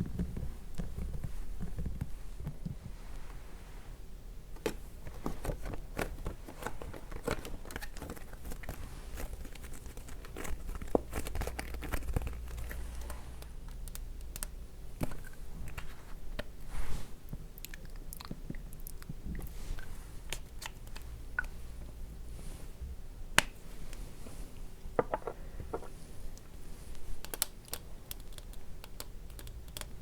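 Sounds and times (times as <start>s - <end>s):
packaging crinkling and clicking: 4.6s - 16.5s, 27.2s - 30.0s.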